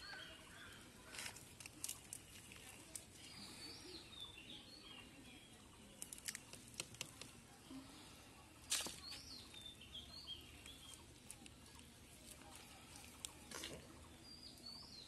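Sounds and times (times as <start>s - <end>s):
faint birdsong: 0.0s - 15.0s
hands digging in dry soil: 8.6s - 9.7s, 10.4s - 14.0s.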